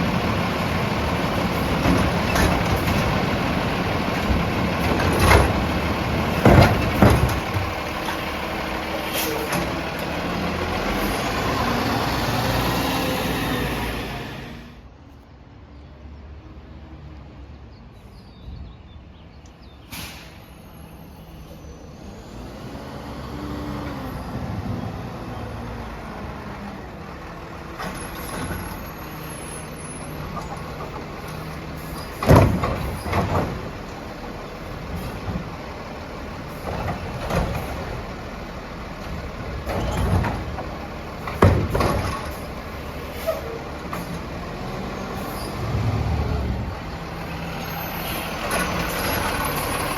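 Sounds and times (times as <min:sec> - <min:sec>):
garbage truck running: 0:00.0 - 0:14.9, 0:20.0 - 0:49.9
loud bangs and clatter: 0:01.2 - 0:08.2, 0:31.9 - 0:33.9, 0:39.3 - 0:42.5.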